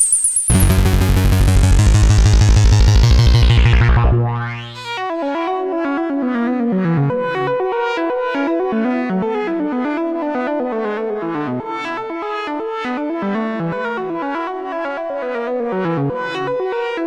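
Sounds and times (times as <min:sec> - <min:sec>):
synthesizer playing short notes: 0:00.0 - 0:05.0.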